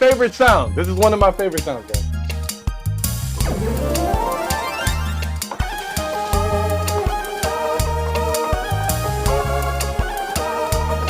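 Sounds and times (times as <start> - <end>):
gliding keyboard lead: 3.4 - 5.6.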